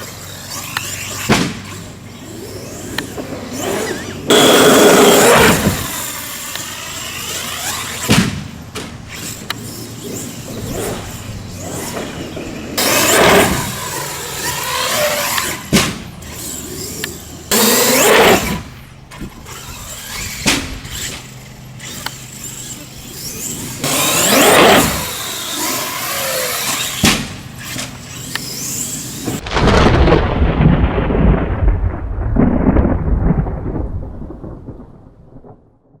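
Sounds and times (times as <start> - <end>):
electric motor whining and revving: 0.0 - 29.5
deep thunder rumble: 29.4 - 36.0.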